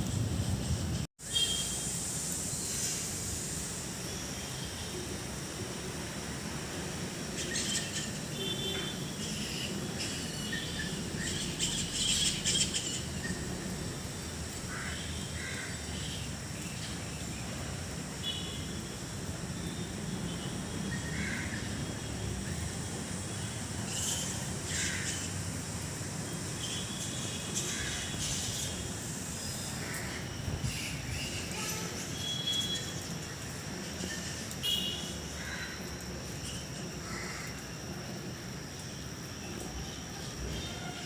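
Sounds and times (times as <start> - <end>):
birds chirping and calling: 9.2 - 13.4.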